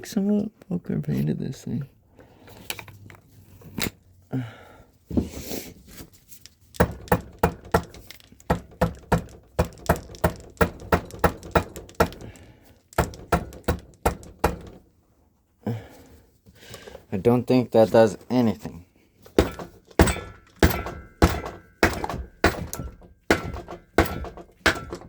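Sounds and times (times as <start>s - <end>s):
scattered knocks: 6.8s - 12.3s, 13.0s - 14.8s, 19.4s - 25.0s
hammer striking metal: 19.4s - 25.0s.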